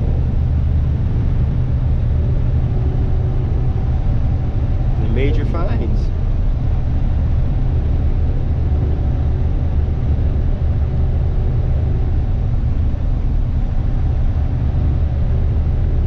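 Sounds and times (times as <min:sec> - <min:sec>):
truck diesel engine drone: 0:00.0 - 0:16.0.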